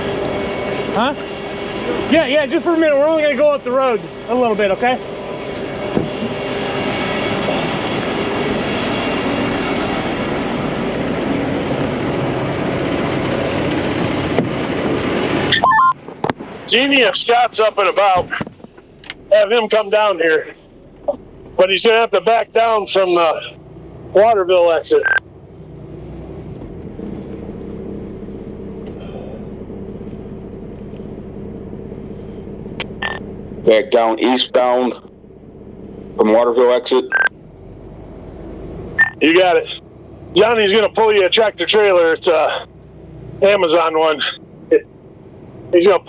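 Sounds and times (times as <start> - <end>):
road noise hiss: 0.0 - 24.2, 24.8 - 36.7
diesel truck engine rumble: 0.0 - 46.0.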